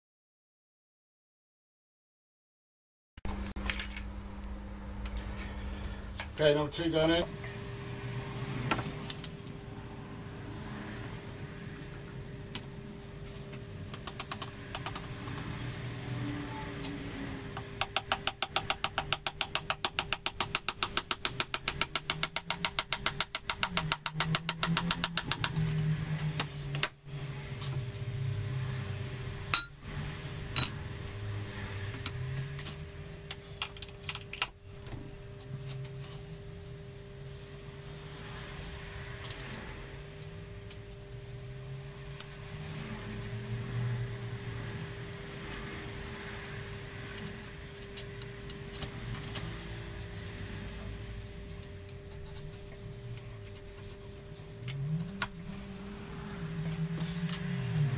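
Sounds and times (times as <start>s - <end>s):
rapid even tool clicks: 17.8s - 25.6s.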